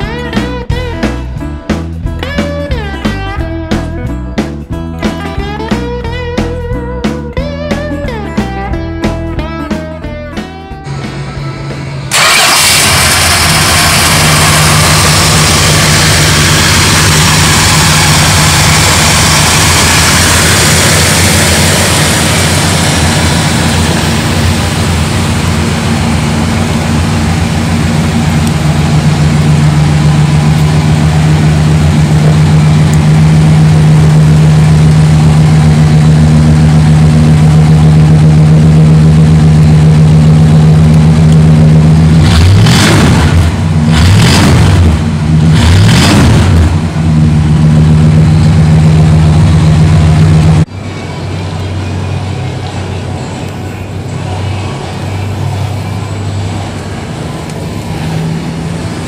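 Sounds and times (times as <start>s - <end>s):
car engine idling: 0.0s - 59.0s
car engine revving: 10.8s - 50.8s.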